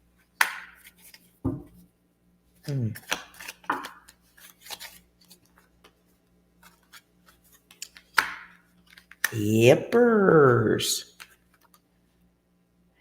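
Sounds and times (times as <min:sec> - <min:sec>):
cards rustling and clicking: 0:00.3 - 0:01.4, 0:02.6 - 0:09.4, 0:11.0 - 0:11.9.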